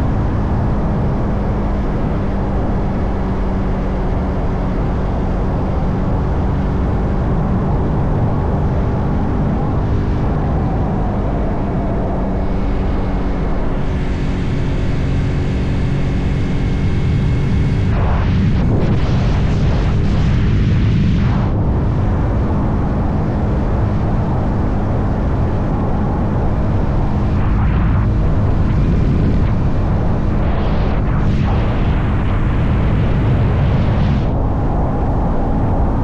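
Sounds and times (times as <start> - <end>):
loud rush of noise: 0.0 - 36.0
wind and road noise: 0.0 - 36.0.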